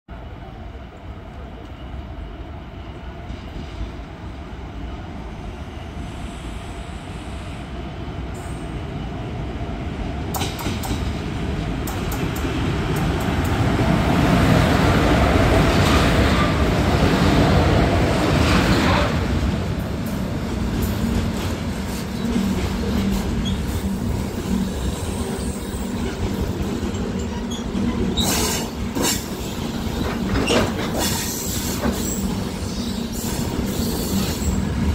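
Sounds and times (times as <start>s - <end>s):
freight train passing: 0.1s - 34.9s
wheels clacking over rail joints: 25.8s - 32.4s.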